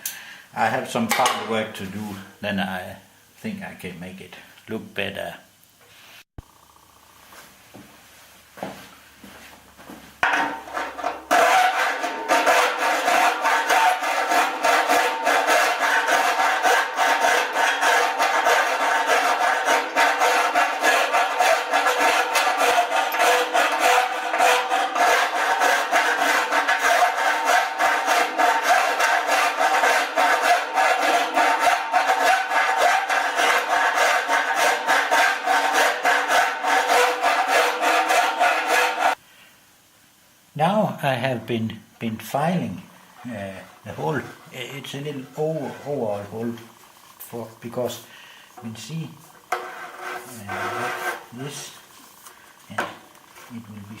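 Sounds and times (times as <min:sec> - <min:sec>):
metal file rasping on metal: 0:10.5 - 0:39.2, 0:43.2 - 0:46.7, 0:48.6 - 0:51.8.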